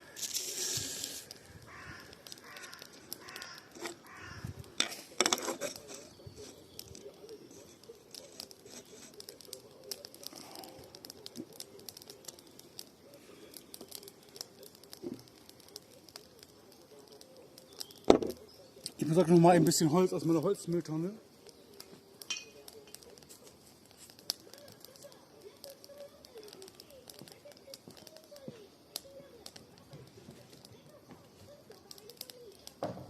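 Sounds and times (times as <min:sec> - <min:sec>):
sharp pops and snaps: 0:00.0 - 0:19.8, 0:20.7 - 0:33.0
campfire crackling: 0:00.0 - 0:33.0
bird chirping: 0:17.3 - 0:19.3.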